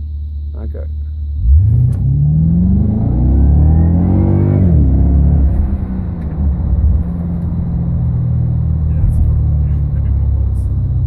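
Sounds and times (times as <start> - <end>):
car engine accelerating: 1.3 - 11.0.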